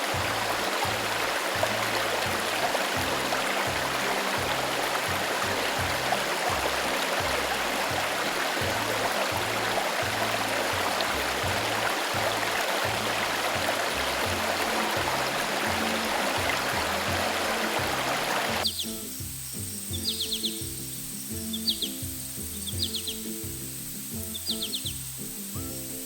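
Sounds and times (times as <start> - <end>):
stream water flowing: 0.0 - 18.7
background music with bass: 0.0 - 26.0.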